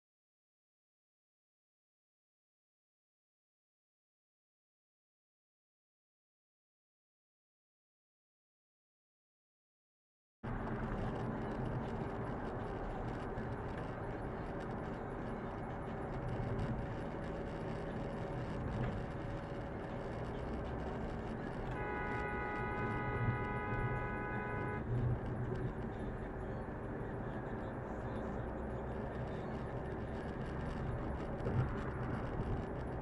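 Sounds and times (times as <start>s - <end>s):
car road noise: 10.4s - 33.0s
car horn long blast: 21.7s - 24.9s.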